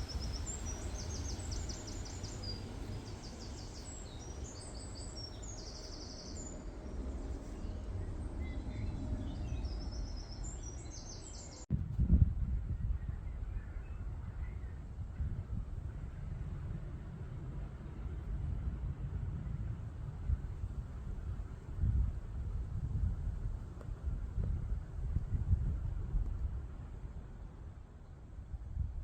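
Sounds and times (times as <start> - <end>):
songbirds singing trills: 0.0 - 11.7.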